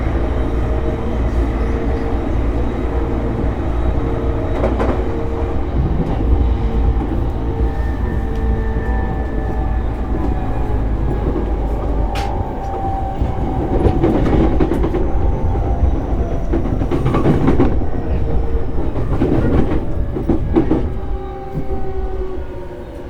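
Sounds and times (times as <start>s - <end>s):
train wheels rumbling on rail: 0.0s - 23.0s
clacks over rail joints: 4.0s - 22.0s.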